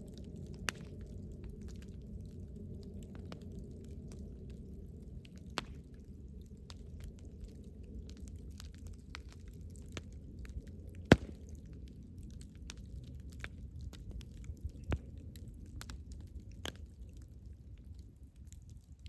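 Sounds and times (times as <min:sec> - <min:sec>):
campfire crackling: 0:00.0 - 0:19.0
low steady rumble: 0:00.0 - 0:19.0.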